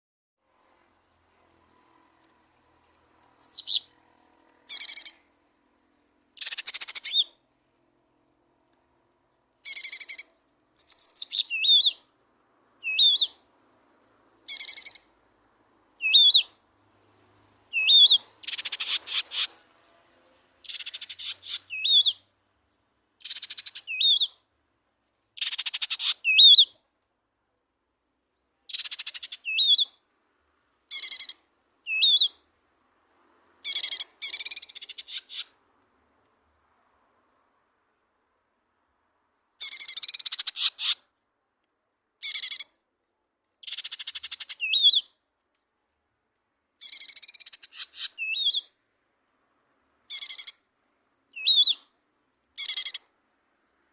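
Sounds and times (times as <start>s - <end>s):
bird warbling song: 3.4s - 3.9s, 6.4s - 7.3s, 9.6s - 12.0s, 12.8s - 13.4s, 16.0s - 16.5s, 17.7s - 19.6s, 20.6s - 22.2s, 43.6s - 45.1s, 46.8s - 48.7s, 51.4s - 51.8s.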